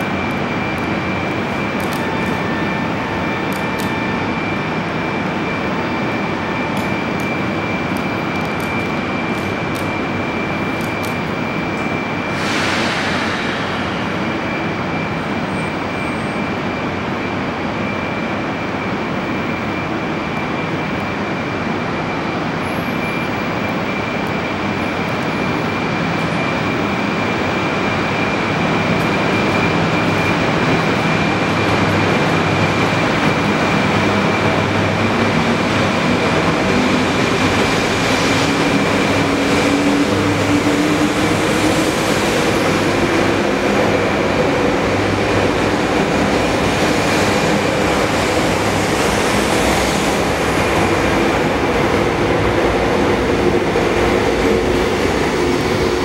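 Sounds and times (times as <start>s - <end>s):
high steady whine: 0.0s - 56.0s
train equipment and blowers running: 0.0s - 56.0s
air hiss: 12.4s - 14.2s.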